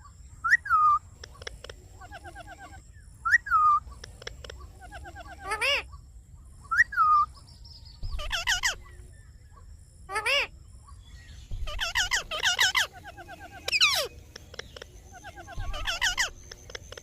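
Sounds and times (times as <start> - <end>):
parrot screeching: 8.2 - 8.8, 11.6 - 14.1, 15.1 - 16.4
faint rapid chirps: 11.3 - 17.0.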